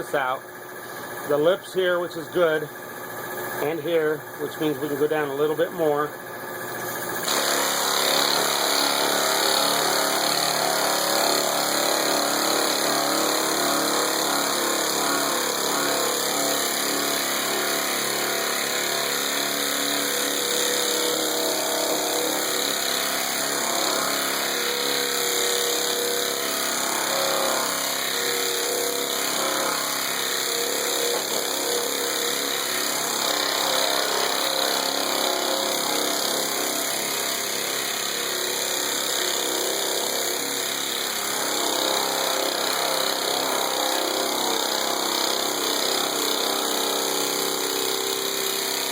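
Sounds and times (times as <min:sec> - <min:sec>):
person talking: 0:00.0 - 0:00.4, 0:01.3 - 0:02.7, 0:03.6 - 0:06.1
pneumatic sander whirring: 0:00.0 - 0:48.9.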